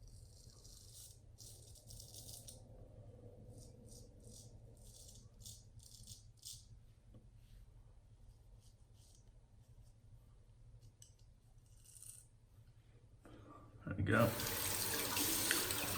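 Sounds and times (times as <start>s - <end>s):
razor scraping stubble: 0.0s - 2.6s, 3.5s - 6.7s, 11.6s - 12.3s.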